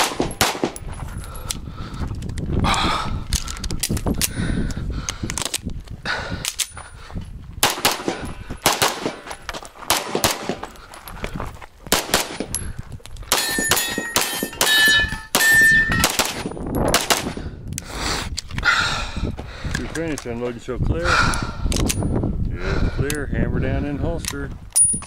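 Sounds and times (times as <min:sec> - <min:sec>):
rapid pistol shots: 0:00.0 - 0:00.8, 0:07.6 - 0:09.3, 0:09.9 - 0:10.6, 0:11.9 - 0:12.5, 0:16.0 - 0:17.4
steel targets ringing: 0:13.4 - 0:16.1.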